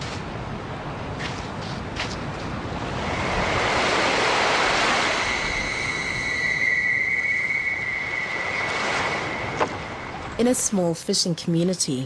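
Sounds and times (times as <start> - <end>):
sea surf washing onto beach: 1.1 - 7.0, 7.7 - 10.7
steady high tone: 3.1 - 11.0.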